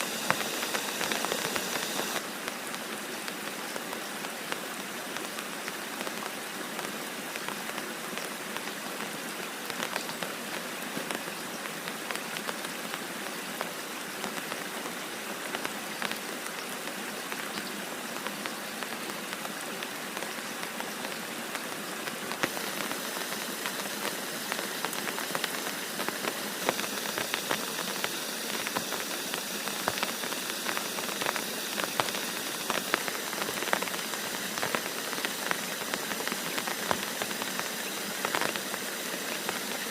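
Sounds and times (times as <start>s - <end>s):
heavy rain falling: 0.0s - 39.9s
sharp raindrop ticks: 0.0s - 39.9s.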